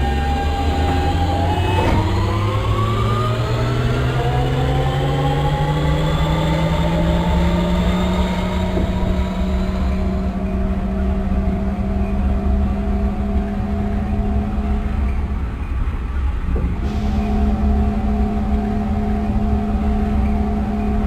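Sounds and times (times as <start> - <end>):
electric train motor whining: 0.0 - 15.2
low rumble: 0.0 - 21.0.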